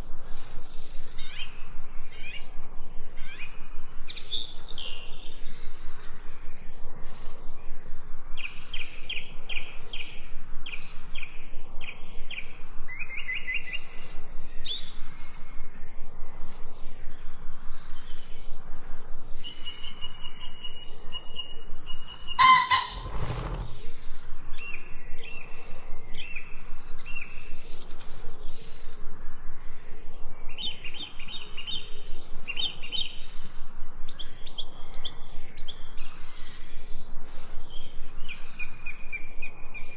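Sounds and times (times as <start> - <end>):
songbirds chirping and singing: 0.0 - 39.9
loud low bird call: 22.2 - 23.8.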